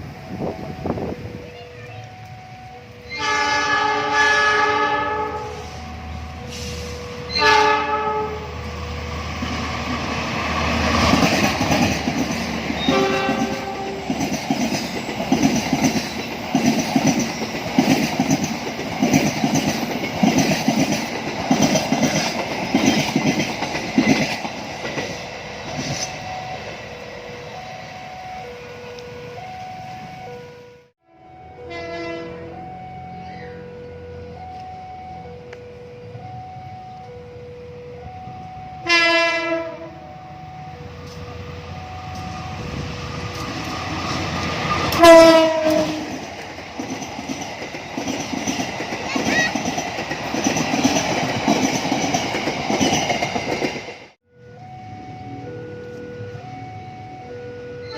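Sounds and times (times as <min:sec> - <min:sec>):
train horn blasts: 0:02.8 - 0:08.6, 0:12.8 - 0:14.1, 0:30.3 - 0:34.4, 0:38.8 - 0:40.2, 0:44.8 - 0:46.3
train wheels clattering on rails: 0:10.4 - 0:26.4, 0:43.0 - 0:54.2
two-tone level crossing signal: 0:25.8 - 0:43.9, 0:54.3 - 0:57.9.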